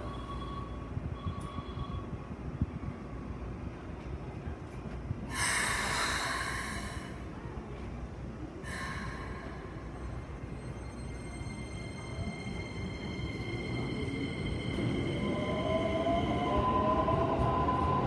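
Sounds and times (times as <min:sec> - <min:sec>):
train air brake hisses: 0:05.3 - 0:07.3, 0:08.6 - 0:10.0.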